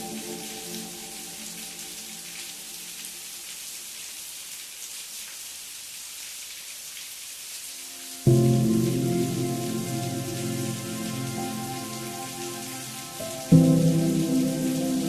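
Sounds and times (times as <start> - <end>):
loud sustained musical chord: 0.0 - 2.2, 8.2 - 15.0
steady rain: 0.0 - 15.0.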